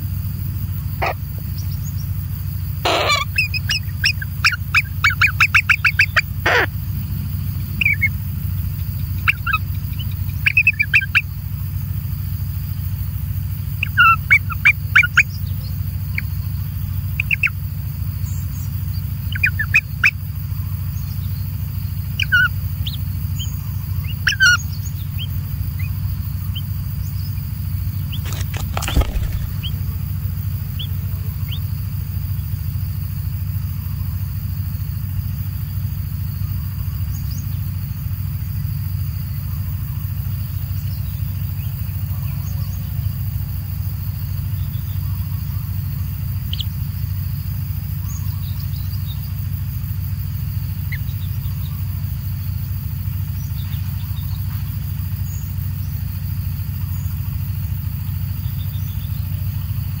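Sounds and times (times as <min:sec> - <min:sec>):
steady low hum: 0:00.0 - 1:00.0
high bird chirps: 0:02.8 - 0:06.7, 0:07.6 - 0:11.3, 0:13.8 - 0:16.3, 0:22.2 - 0:27.4, 0:28.0 - 0:29.9.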